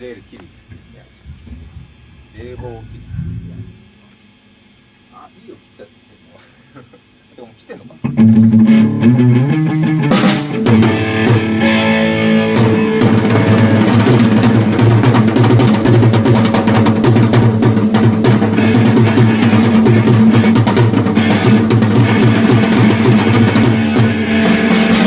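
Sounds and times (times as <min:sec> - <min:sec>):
bass guitar: 0:08.0 - 0:25.0
electric guitar: 0:08.0 - 0:25.0
drum kit: 0:08.1 - 0:25.0.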